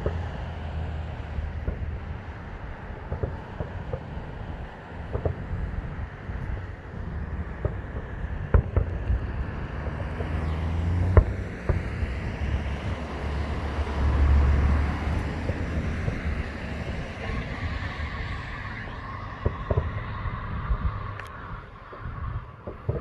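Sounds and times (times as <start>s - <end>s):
distant fireworks bangs: 0.0s - 23.0s
road traffic noise: 0.0s - 23.0s
vehicle passing with low rumble: 0.0s - 23.0s.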